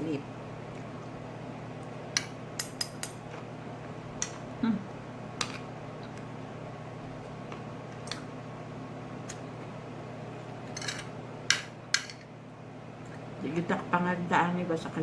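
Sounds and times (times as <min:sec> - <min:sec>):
cutlery clinking against plate: 0:10.7 - 0:12.3.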